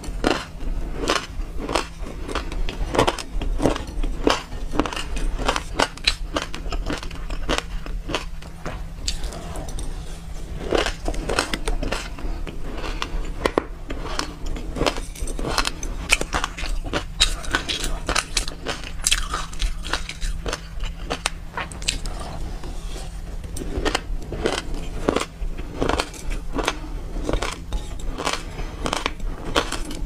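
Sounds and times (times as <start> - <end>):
chewing crunchy seeds: 0.0 - 30.0
plastic spoon scraping glass bowl: 21.6 - 30.0.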